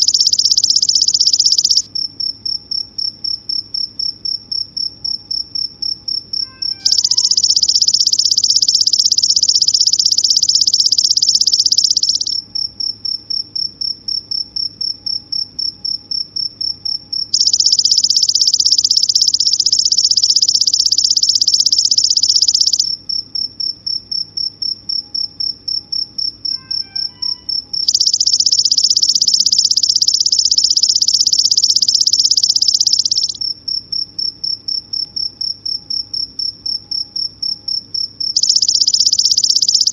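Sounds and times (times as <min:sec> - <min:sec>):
insect buzzing trill: 0:00.0 - 0:01.9, 0:06.4 - 0:12.4, 0:17.4 - 0:23.0, 0:26.5 - 0:33.4, 0:38.4 - 0:39.9
insects chirping: 0:00.0 - 0:39.9.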